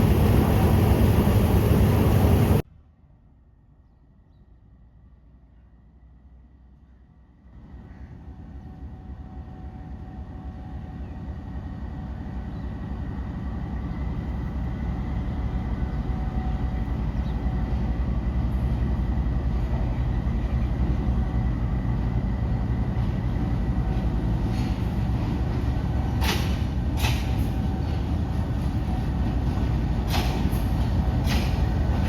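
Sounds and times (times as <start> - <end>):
diesel locomotive rumble: 0.0 - 2.6, 7.5 - 32.0.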